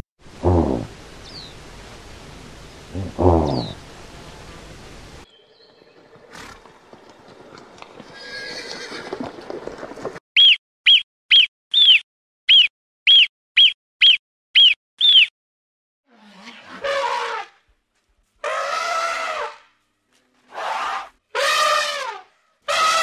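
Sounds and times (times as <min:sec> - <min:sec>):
faint outdoor sound: 0:00.2 - 0:15.3
marmot alarm calls: 0:10.4 - 0:15.3.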